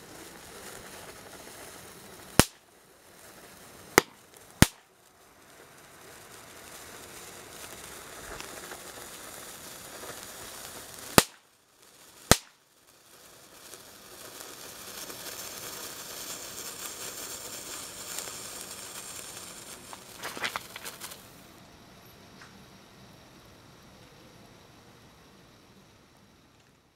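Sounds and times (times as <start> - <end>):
crackling pops: 0.0 - 21.5
loud firecracker bangs: 2.3 - 2.6, 3.9 - 4.9, 11.1 - 11.5, 12.3 - 12.6.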